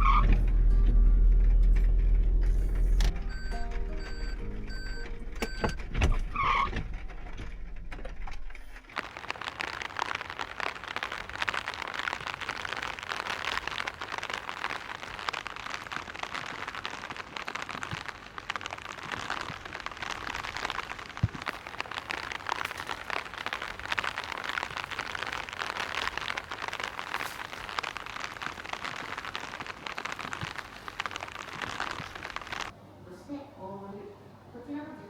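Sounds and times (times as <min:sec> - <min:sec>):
low vehicle rumble: 0:00.0 - 0:08.9
dense rain patter: 0:00.0 - 0:32.8
short beeps: 0:03.2 - 0:05.8.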